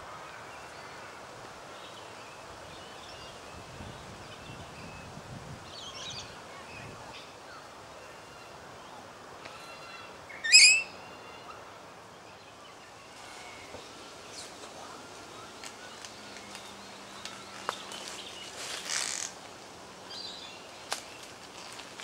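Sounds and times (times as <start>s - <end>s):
parrot screech: 10.4s - 11.0s
brief rustling hiss: 15.6s - 19.5s.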